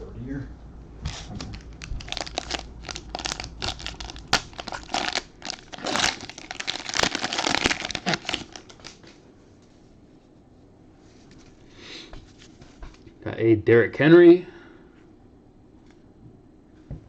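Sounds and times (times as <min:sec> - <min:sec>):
plastic wrapper crinkling: 0:01.1 - 0:09.2.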